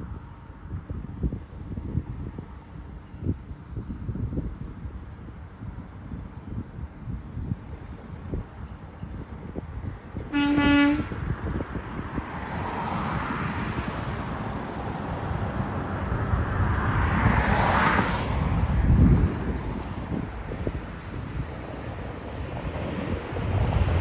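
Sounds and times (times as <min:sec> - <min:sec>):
wind buffeting microphone: 0:00.0 - 0:24.0
passing vehicle noise: 0:09.8 - 0:24.0
vehicle horn toot: 0:10.3 - 0:11.1.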